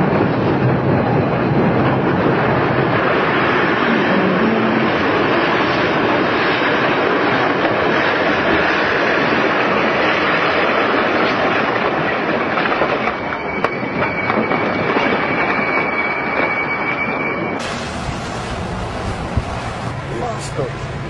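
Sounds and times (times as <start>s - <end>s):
high-pitched wheel squeal: 13.1s - 17.6s
train wheels rumbling: 17.6s - 21.0s.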